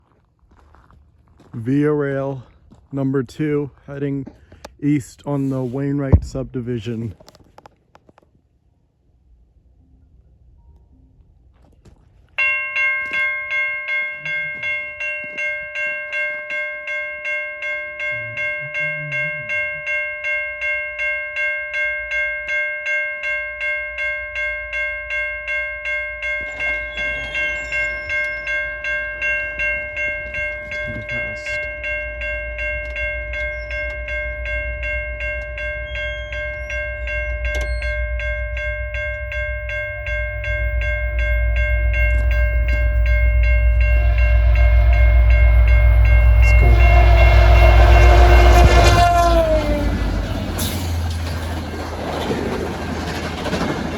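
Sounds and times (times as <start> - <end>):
train rumbling: 0.0 - 7.6, 23.6 - 53.9
crossing warning bell ringing: 12.4 - 53.9.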